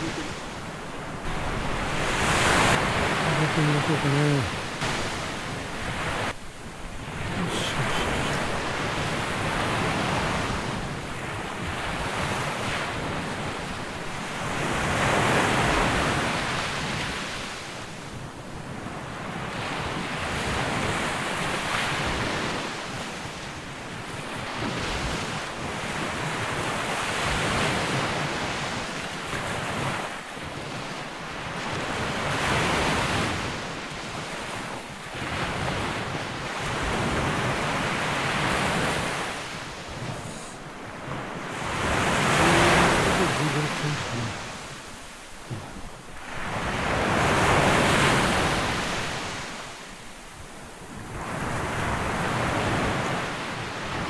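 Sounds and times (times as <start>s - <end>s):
surf breaking on sandy beach: 41.4s - 49.6s.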